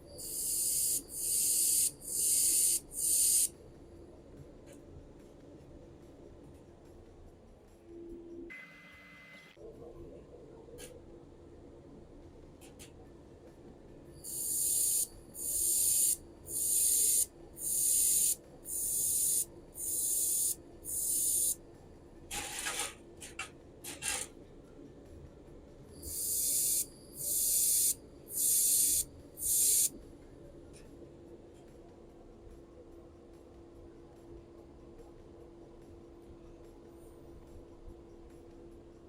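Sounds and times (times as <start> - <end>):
laser welder pulse hiss: 0.2 - 3.5, 14.2 - 21.6, 26.0 - 29.9.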